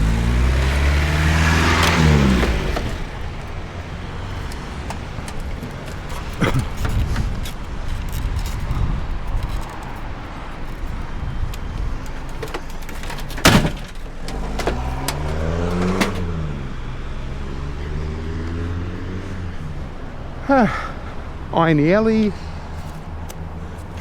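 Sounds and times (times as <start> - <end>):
car engine revving: 0.0 - 7.9, 11.3 - 19.8.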